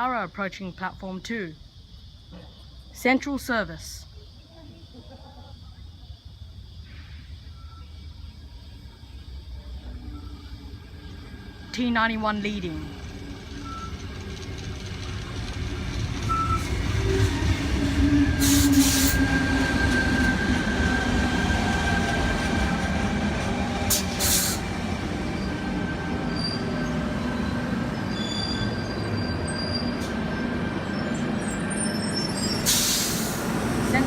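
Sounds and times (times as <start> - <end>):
electric train motors humming: 7.4 - 32.8
short hissing bursts: 23.9 - 24.7, 32.7 - 33.5.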